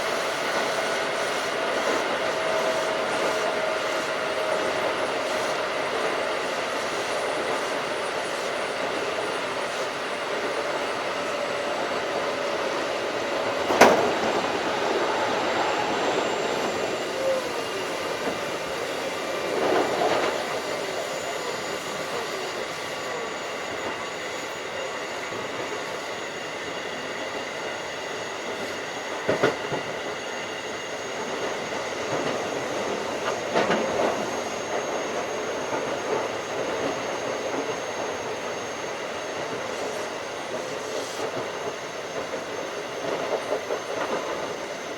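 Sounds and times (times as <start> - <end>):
faint whining tones: 0.0 - 44.9
train wheels rushing on rail: 0.0 - 44.9
clacks over rail joints: 13.4 - 16.9, 32.1 - 34.9.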